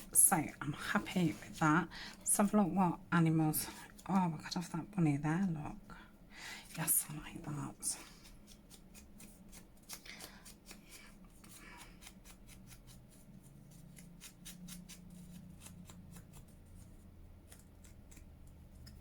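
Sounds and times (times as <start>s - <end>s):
scissors snipping paper: 8.2s - 19.0s.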